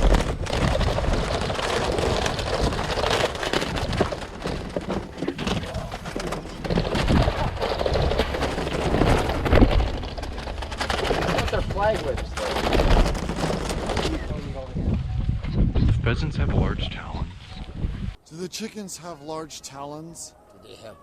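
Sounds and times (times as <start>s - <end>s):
pheasants beating wings: 0.0s - 14.6s.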